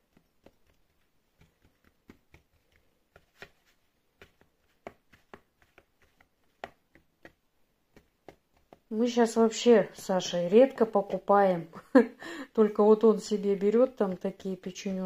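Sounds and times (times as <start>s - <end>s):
fork tapping dough: 0.0s - 3.5s, 4.2s - 10.8s.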